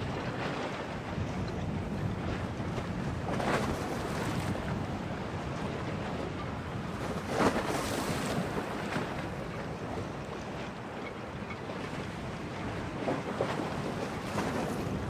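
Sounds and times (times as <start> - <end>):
storm wind: 0.0 - 10.5
waves slapping against quay: 0.0 - 15.0
wind buffeting microphone: 0.0 - 15.0.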